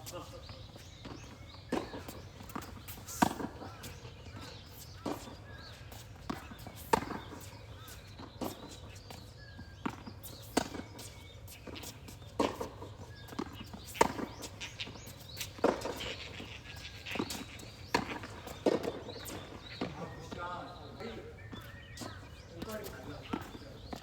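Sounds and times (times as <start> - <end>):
tennis ball bouncing: 1.0 - 5.3, 5.9 - 7.5, 9.8 - 20.5, 21.5 - 24.0
tennis racket striking ball: 17.1 - 19.9.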